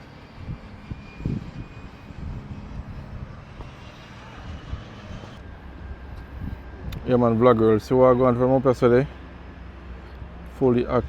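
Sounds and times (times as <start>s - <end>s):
wind on microphone: 0.0s - 7.3s
airplane engine droning: 0.0s - 11.0s.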